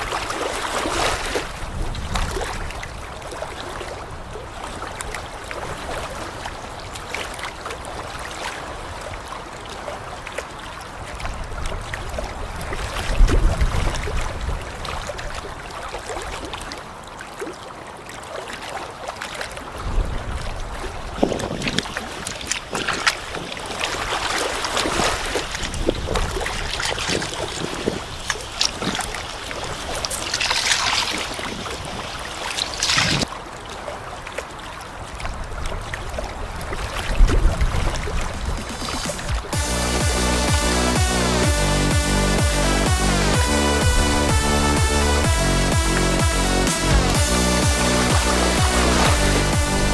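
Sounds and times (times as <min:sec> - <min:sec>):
wind rumbling on microphone: 0:00.0 - 0:06.9, 0:11.2 - 0:15.6, 0:19.8 - 0:33.3, 0:35.2 - 0:39.6
lake water lapping: 0:00.0 - 0:13.2, 0:20.8 - 0:39.6.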